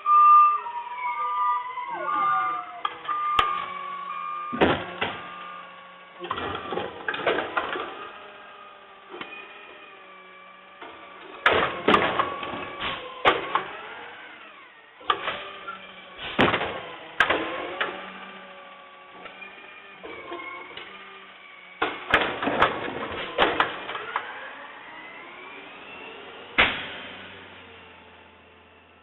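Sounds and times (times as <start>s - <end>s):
whining mechanical tone: 0.0s - 29.0s
sharp clanks and bangs: 4.6s - 5.3s, 10.8s - 13.8s, 16.2s - 18.0s, 26.6s - 27.2s.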